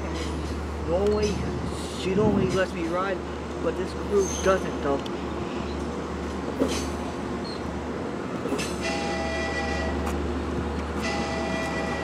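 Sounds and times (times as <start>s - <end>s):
train rumbling low: 0.0s - 12.0s.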